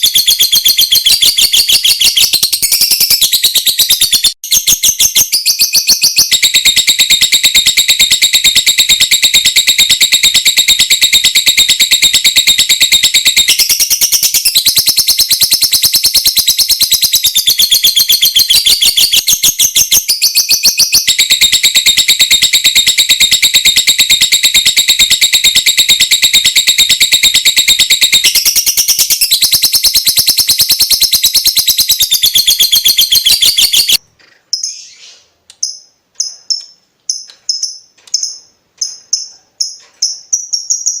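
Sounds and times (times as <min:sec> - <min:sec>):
lovebird clicking chatter: 0:00.0 - 0:41.0
short bird chirps: 0:28.3 - 0:41.0.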